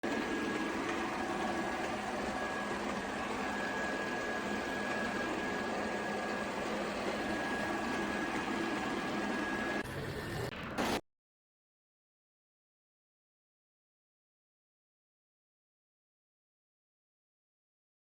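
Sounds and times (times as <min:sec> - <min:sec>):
robot vacuum motor whirring: 0:00.1 - 0:11.0.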